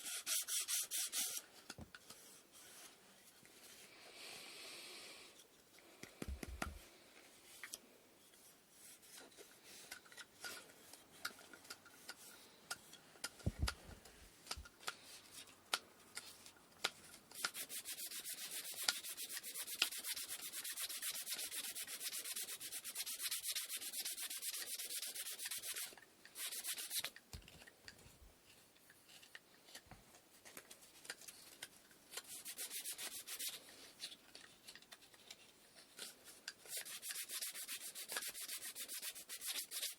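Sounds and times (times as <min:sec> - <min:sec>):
sandpaper sanding wood: 0:00.0 - 0:01.4, 0:17.4 - 0:27.0, 0:32.3 - 0:33.6, 0:36.7 - 0:39.9
dull knocks on wood: 0:13.4 - 0:13.8.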